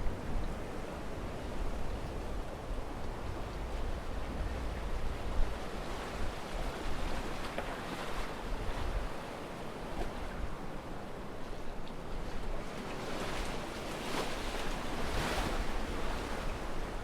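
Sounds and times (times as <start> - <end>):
wind rumble on microphone: 0.0 - 17.0
sea waves breaking on beach: 12.6 - 17.0.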